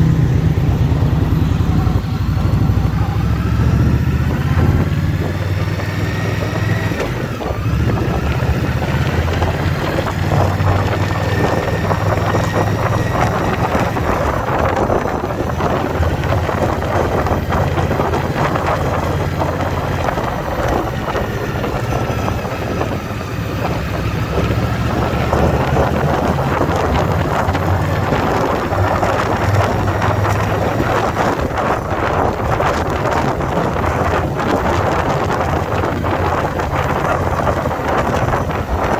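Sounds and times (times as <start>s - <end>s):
motorcycle engine running: 0.0s - 38.9s
wind buffeting microphone: 0.0s - 38.9s.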